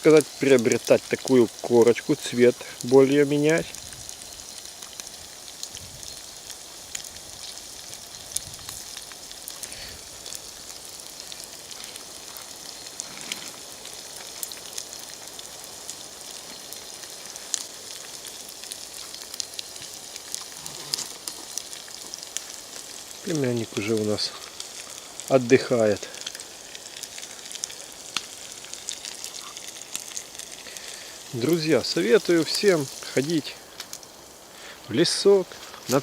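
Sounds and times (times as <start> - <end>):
meat sizzling with pops: 0.0 - 36.0.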